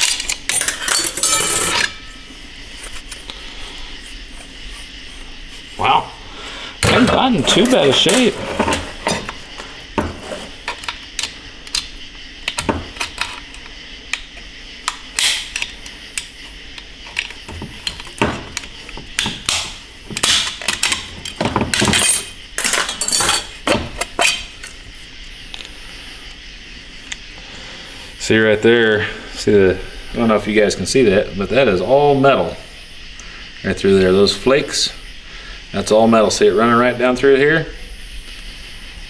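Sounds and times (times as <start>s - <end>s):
metal parts clinking: 0.0s - 2.3s, 20.2s - 24.8s.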